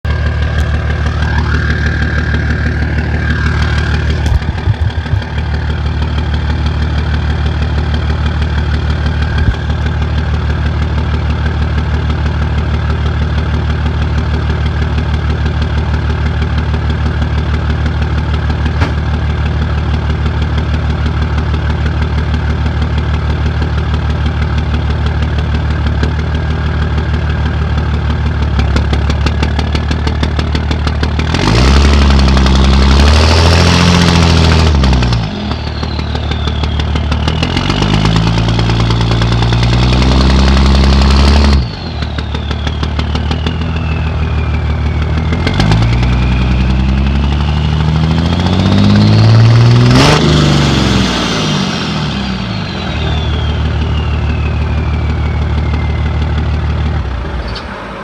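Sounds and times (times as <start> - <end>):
diesel engine idling roughly: 0.0 - 58.0
high wavering whine: 0.1 - 10.0, 34.4 - 48.2, 51.0 - 58.0.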